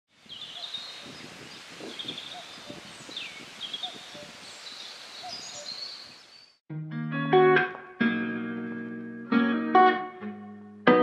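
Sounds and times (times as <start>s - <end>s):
birds chirping: 0.2s - 6.6s.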